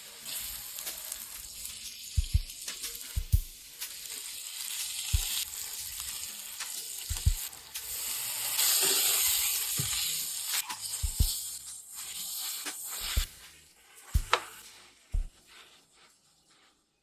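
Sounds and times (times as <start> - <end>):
food sizzling in a frying pan: 0.0 - 15.7
dull low thumps: 3.2 - 3.5, 11.0 - 11.3, 15.2 - 15.4.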